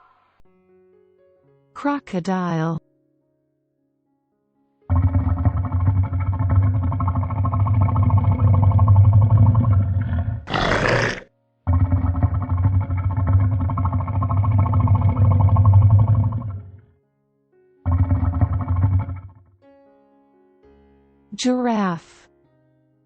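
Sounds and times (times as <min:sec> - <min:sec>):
crocodile hiss: 0:04.9 - 0:16.7
crocodile growling: 0:04.9 - 0:16.9, 0:17.8 - 0:19.5.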